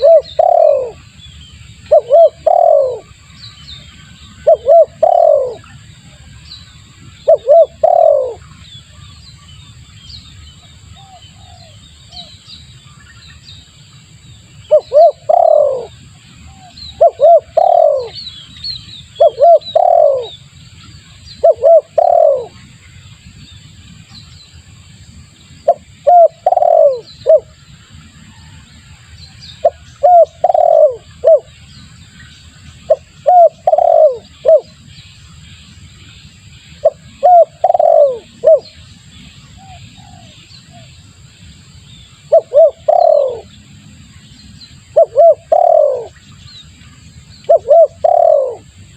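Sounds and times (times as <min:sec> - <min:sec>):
dove cooing: 0:00.0 - 0:01.0, 0:01.9 - 0:03.1, 0:04.4 - 0:05.7, 0:07.2 - 0:08.4, 0:14.7 - 0:18.2, 0:19.2 - 0:20.4, 0:21.4 - 0:22.6, 0:25.7 - 0:27.5, 0:29.6 - 0:31.5, 0:32.9 - 0:34.7, 0:36.8 - 0:38.8, 0:39.6 - 0:40.9, 0:42.3 - 0:43.5, 0:45.0 - 0:46.2, 0:47.5 - 0:48.7
small birds chirping: 0:00.0 - 0:28.0, 0:29.2 - 0:48.9.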